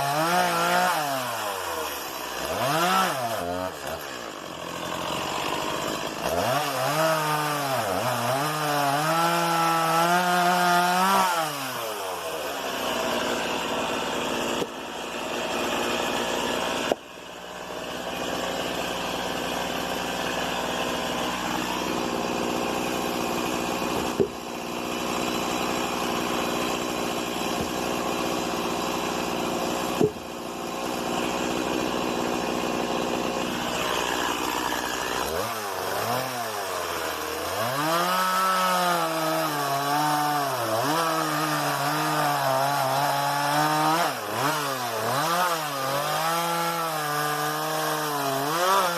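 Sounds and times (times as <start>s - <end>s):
chainsaw running: 0.0s - 48.9s.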